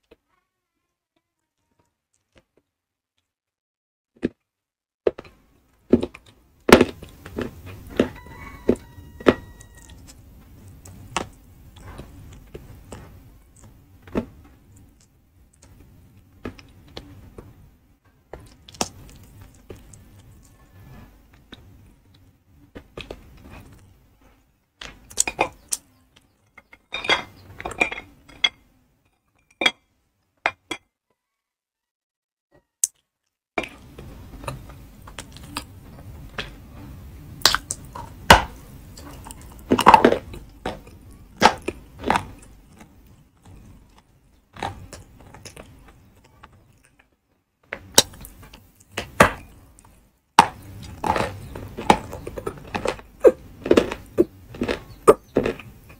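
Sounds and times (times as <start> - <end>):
crunchy chewing: 5.1 - 17.5, 18.4 - 24.4, 33.6 - 36.1, 37.4 - 47.2, 47.8 - 55.9.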